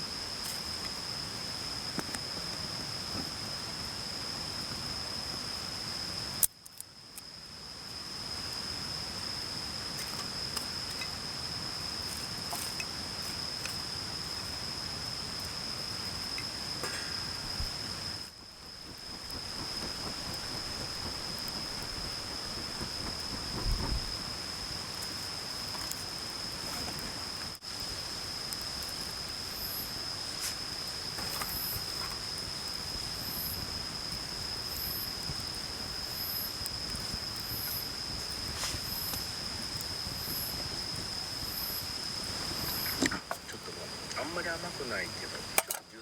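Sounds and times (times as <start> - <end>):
low thump: 18.5 - 24.3
mountain stream rushing: 18.6 - 24.8.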